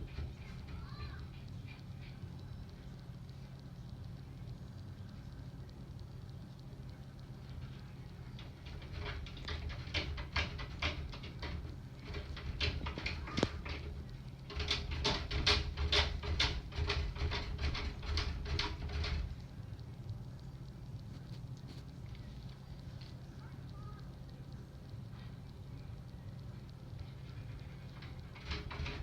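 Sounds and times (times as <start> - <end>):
steady low hum: 0.0 - 29.0
rapid sharp tapping: 8.4 - 19.4.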